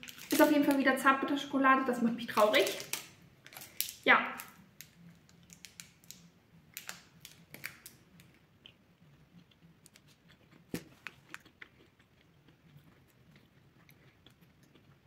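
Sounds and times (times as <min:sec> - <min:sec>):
biting and chewing: 0:07.4 - 0:15.0.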